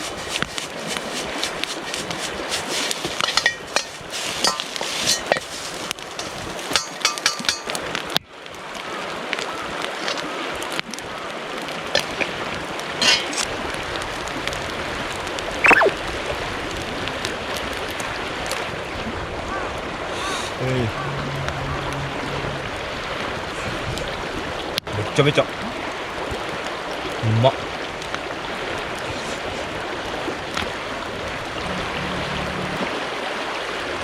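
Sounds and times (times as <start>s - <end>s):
river water rushing: 28.2s - 34.0s.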